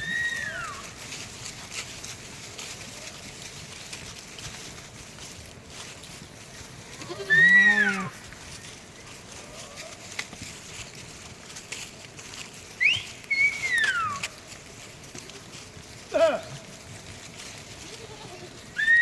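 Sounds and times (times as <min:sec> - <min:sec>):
sheep bleating: 0:06.9 - 0:08.2, 0:17.8 - 0:19.0.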